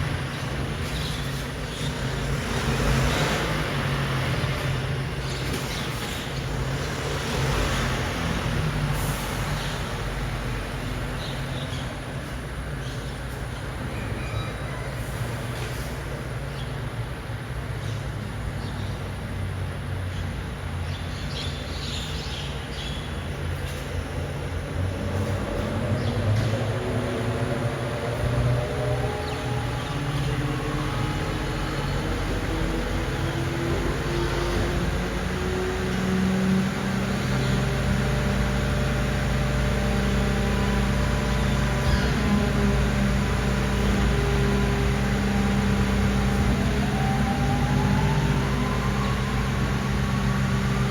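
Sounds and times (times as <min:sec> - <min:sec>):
diesel truck engine running: 0:00.0 - 0:14.2, 0:23.4 - 0:50.9
faint high squeaks and clinks: 0:13.9 - 0:15.0.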